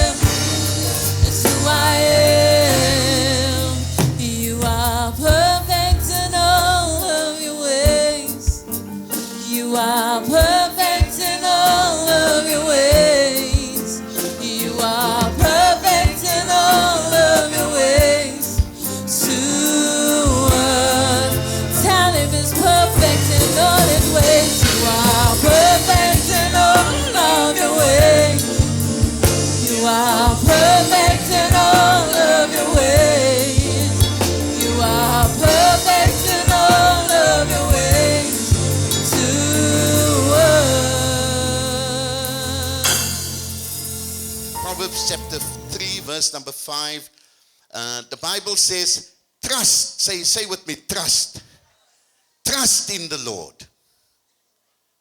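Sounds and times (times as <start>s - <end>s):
bass line: 0.0s - 7.2s, 20.3s - 46.1s
gospel song with lead vocal: 0.0s - 47.0s.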